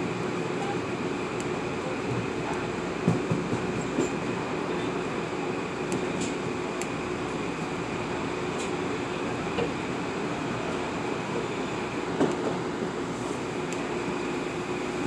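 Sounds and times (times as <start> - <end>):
train wheels rumbling on rails: 1.9 - 9.8.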